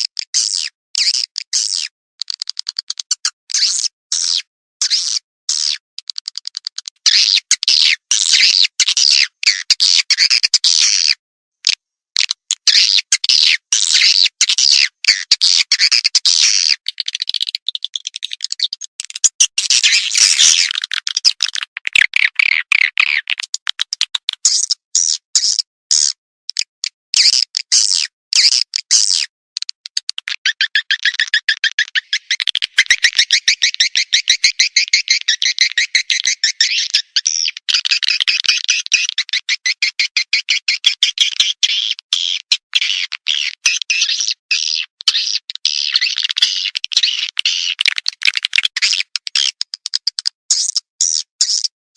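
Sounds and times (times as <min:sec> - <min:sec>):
rapid high chirping and twittering: 0:12.7 - 0:26.1, 0:30.2 - 0:51.7.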